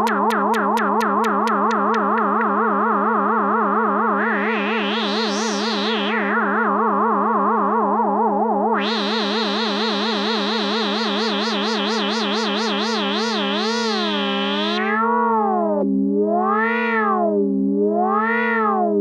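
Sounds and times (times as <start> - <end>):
synthesizer low held note: 0.0 - 6.8, 8.8 - 14.9
wavering synthesizer tone: 0.0 - 8.0, 8.7 - 15.0.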